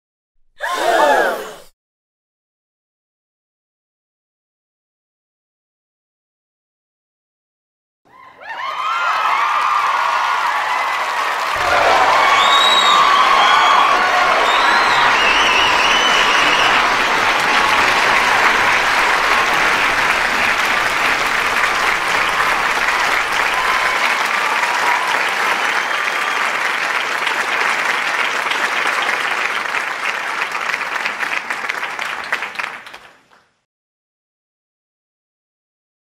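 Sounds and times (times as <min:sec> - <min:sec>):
studio audience clapping: 0:08.4 - 0:33.7.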